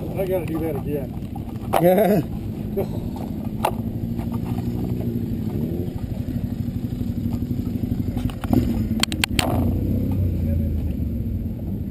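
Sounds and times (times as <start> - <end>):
sharp clicks and knocks: 0.0 - 2.1, 3.0 - 6.1, 8.1 - 10.3
motorcycle engine idling: 0.0 - 11.9.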